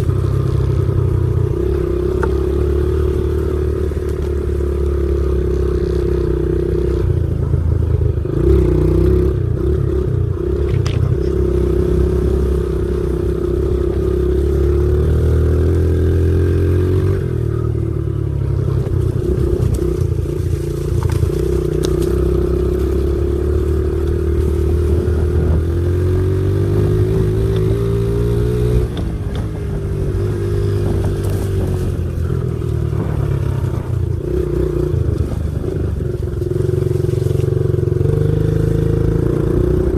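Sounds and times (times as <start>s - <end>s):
pit bike engine revving: 8.2s - 39.9s.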